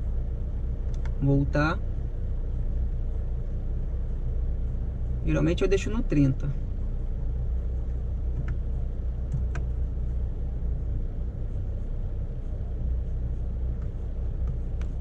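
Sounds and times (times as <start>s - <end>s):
car engine idling: 0.0s - 15.0s
faint clicks: 0.9s - 1.2s.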